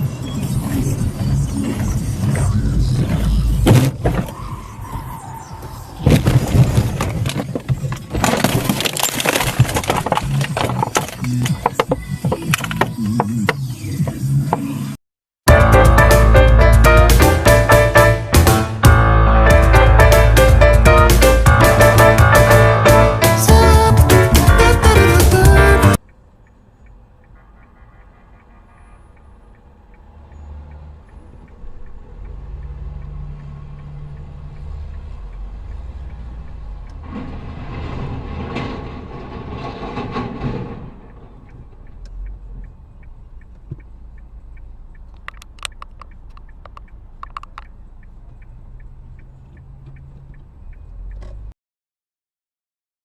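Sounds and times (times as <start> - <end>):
car engine and road rumble: 0.0 - 51.6
sharp clicks and knocks: 6.1 - 14.7, 39.5 - 50.5
rushing noise: 36.9 - 41.5.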